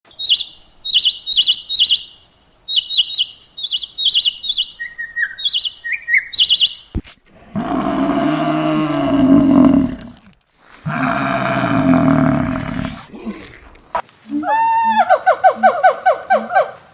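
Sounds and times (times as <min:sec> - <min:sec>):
bird chirping: 0:00.1 - 0:07.0
large animal low calls: 0:07.3 - 0:16.6.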